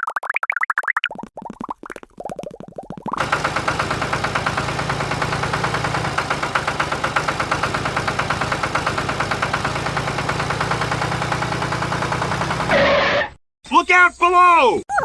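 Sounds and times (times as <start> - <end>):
tractor engine chugging: 3.2 - 12.8.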